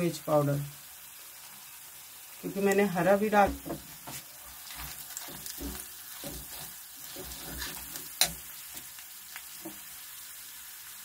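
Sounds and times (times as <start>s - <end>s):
masala sizzling in hot oil: 0.0s - 11.0s
metal spatula scraping pan: 3.4s - 8.9s
spatula clanking against pan: 4.8s - 8.5s.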